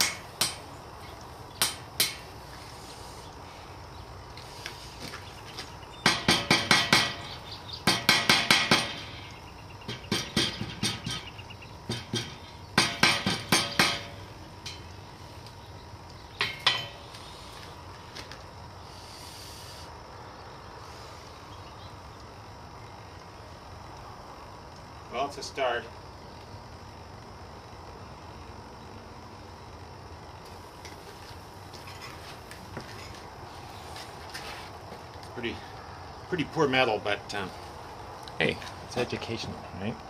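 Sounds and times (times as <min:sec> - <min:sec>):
hammer striking metal on anvil: 0:00.0 - 0:00.6, 0:01.6 - 0:02.2, 0:06.0 - 0:07.3, 0:07.9 - 0:09.2, 0:09.9 - 0:11.3, 0:11.9 - 0:14.8, 0:16.4 - 0:17.0
faint steady hiss: 0:00.0 - 0:40.0.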